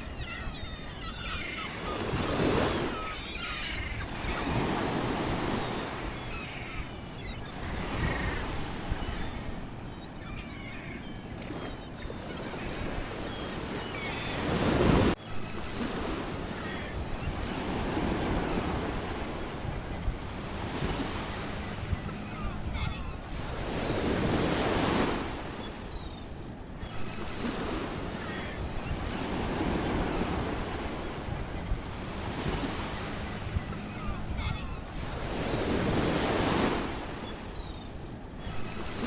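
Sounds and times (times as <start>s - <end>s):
sea surf breaking: 0.0s - 15.2s.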